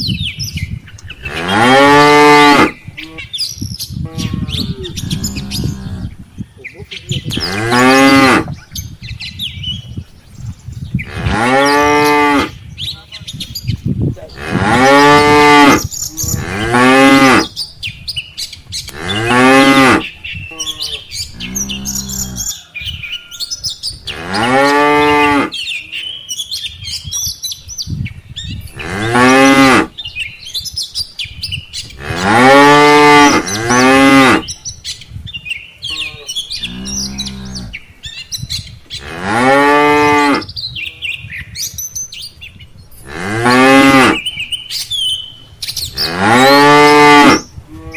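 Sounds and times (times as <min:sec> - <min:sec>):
cattle mooing: 0:14.3 - 0:17.5, 0:19.0 - 0:22.5, 0:35.9 - 0:37.7, 0:46.0 - 0:47.9.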